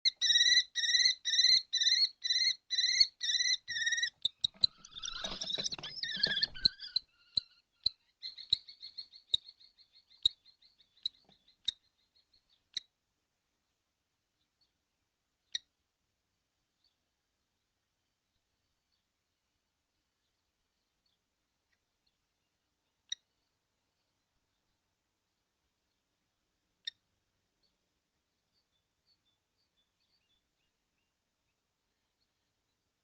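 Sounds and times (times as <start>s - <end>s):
sharp kestrel calls: 0.0s - 12.9s.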